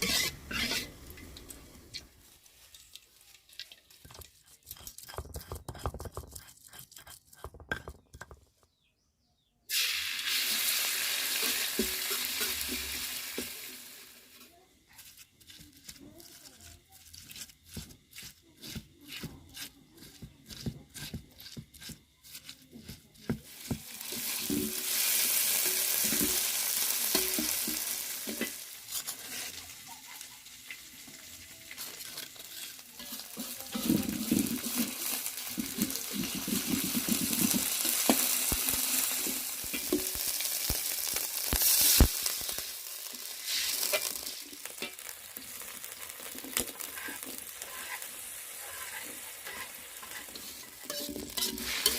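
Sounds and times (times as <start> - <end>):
spatula scraping pan: 0.0 - 1.3, 4.0 - 8.3, 14.9 - 24.9, 27.1 - 30.3, 31.7 - 40.4, 43.2 - 45.2, 45.9 - 51.9
food sizzling in hot oil: 0.0 - 5.2, 9.7 - 51.9.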